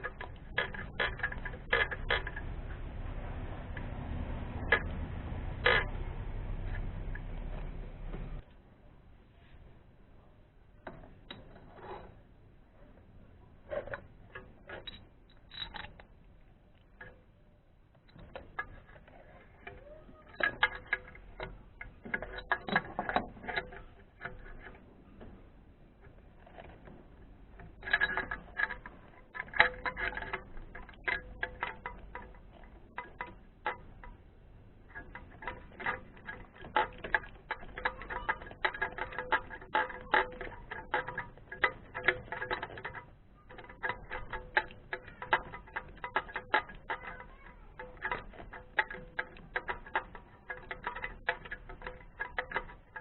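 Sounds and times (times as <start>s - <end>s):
metal tool clicks: 34.9s - 53.0s.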